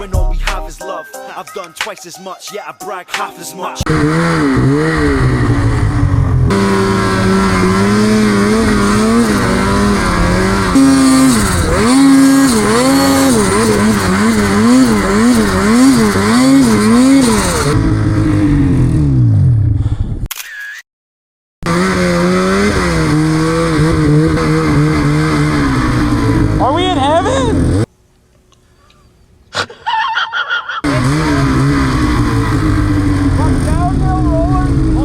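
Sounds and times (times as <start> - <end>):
snowmobile engine revving: 3.8 - 19.8, 21.6 - 27.9, 30.8 - 35.0.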